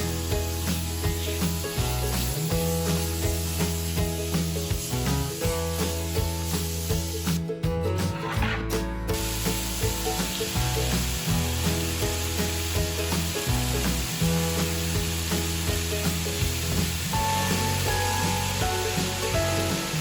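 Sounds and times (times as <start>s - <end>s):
chicken sizzling in a hot pan: 0.0s - 7.4s, 9.1s - 20.0s
background music: 0.0s - 20.0s.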